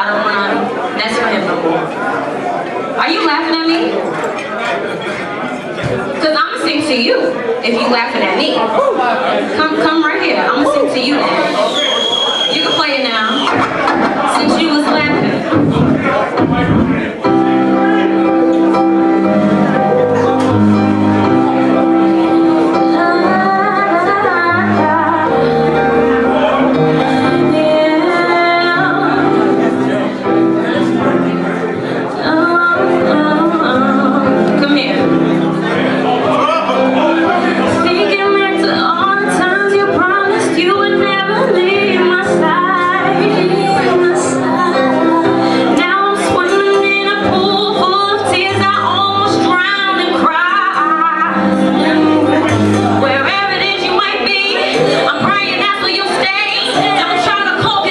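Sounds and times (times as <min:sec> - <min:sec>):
slow r and b backing track: 0:11.2 - 0:57.9
woman singing ballad: 0:21.4 - 0:26.2, 0:26.8 - 0:30.0, 0:31.9 - 0:35.3, 0:37.7 - 0:57.9.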